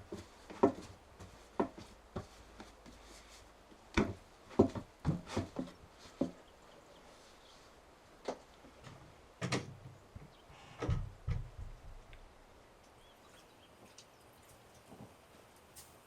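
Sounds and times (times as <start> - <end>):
knocks: 10.8 - 12.0.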